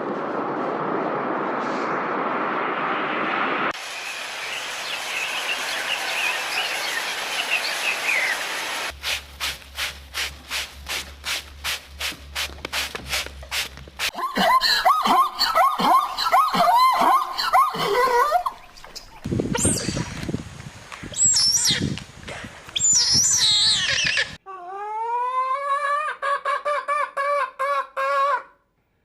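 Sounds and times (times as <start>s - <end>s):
rhythmic rubbing: 8.9s - 14.2s
dog whimpering: 24.5s - 26.2s.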